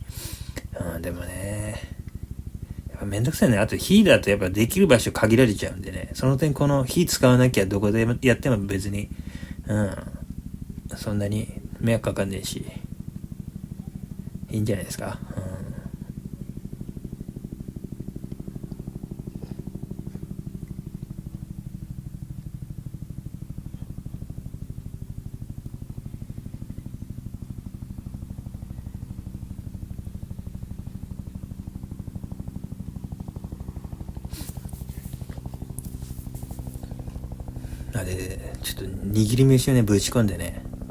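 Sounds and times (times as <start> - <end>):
pulsing mechanical drone: 0.0 - 40.9.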